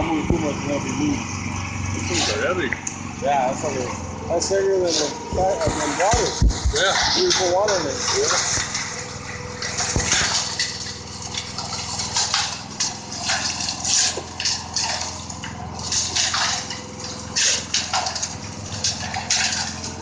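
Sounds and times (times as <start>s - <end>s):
steady low hum: 0.0s - 20.0s
wet concrete sloshing and pouring: 4.8s - 20.0s.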